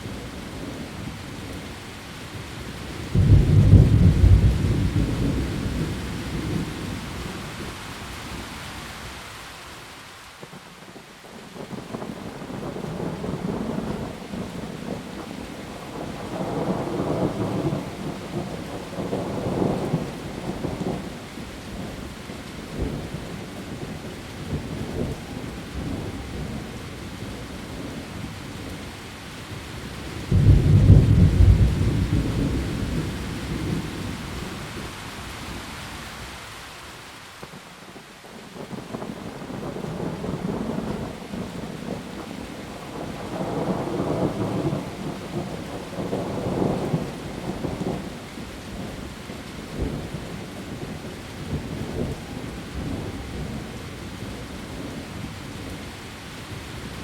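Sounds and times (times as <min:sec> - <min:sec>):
rain falling on leaves: 0:00.0 - 0:57.0
thunder rumbling: 0:03.1 - 0:07.7, 0:30.2 - 0:35.7, 0:38.6 - 0:49.1.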